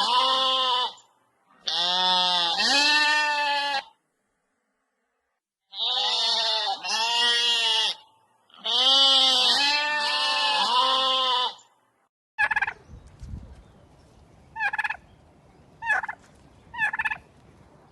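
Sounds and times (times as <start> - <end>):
goats bleating: 0.0 - 1.0, 1.6 - 4.0, 5.7 - 8.0, 8.6 - 11.6
turkey gobbling: 12.4 - 12.8, 14.6 - 15.0, 15.8 - 17.2.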